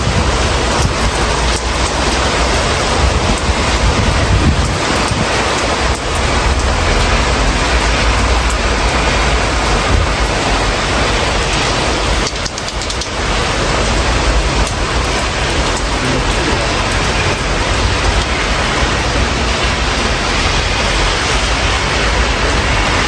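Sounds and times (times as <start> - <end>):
steady rain through open window: 0.0 - 23.0.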